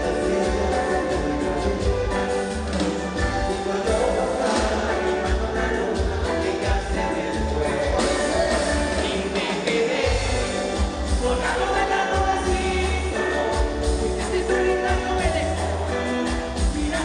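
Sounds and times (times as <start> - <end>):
live latin band music: 0.0 - 17.0
pulsing bass beat: 10.1 - 17.0.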